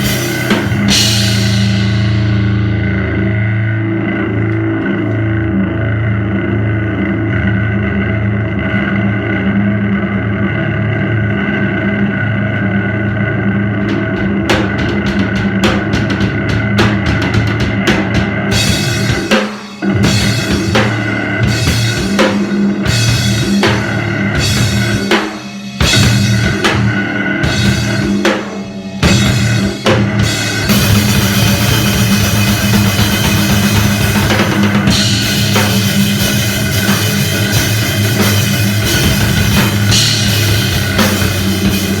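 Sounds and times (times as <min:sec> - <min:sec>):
loud band playing noise: 0:00.0 - 0:03.5, 0:12.5 - 0:42.0
droning guitar hum: 0:00.0 - 0:42.0
drum hits: 0:13.0 - 0:42.0.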